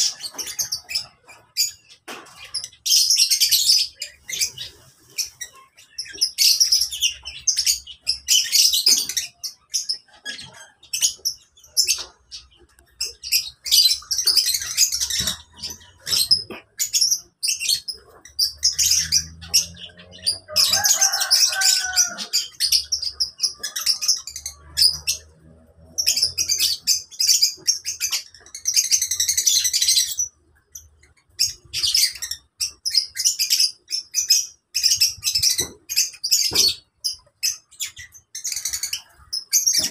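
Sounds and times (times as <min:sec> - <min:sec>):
lovebirds chirping shrilly: 0:00.0 - 0:39.9.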